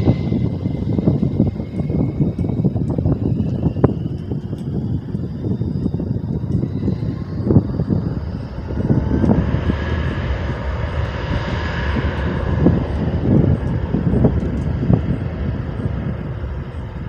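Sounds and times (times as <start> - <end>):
airplane engines passing: 0.0 - 17.0
wind buffeting microphone: 0.0 - 17.0.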